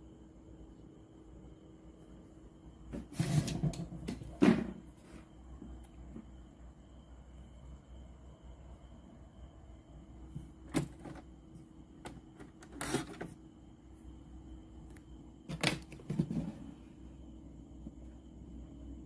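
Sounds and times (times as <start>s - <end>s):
low steady hum: 0.0s - 19.0s
short scrape: 3.0s - 3.8s.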